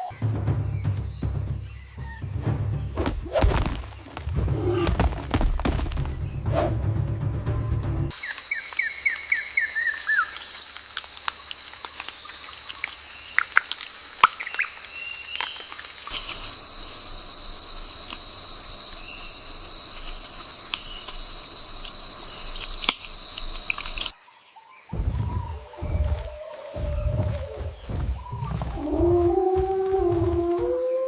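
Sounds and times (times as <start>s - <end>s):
bird trill: 8.1s - 24.1s
insect chorus shrilling: 8.1s - 31.0s
sharp clicks: 19.9s - 24.1s
low rumble: 25.0s - 30.5s.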